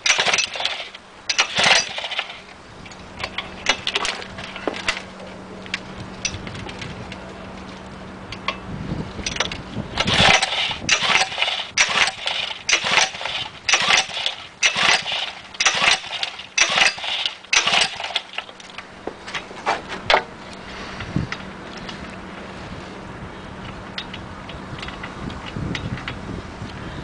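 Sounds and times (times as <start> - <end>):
two-stroke stationary engine running: 0.0 - 8.6, 9.2 - 25.7.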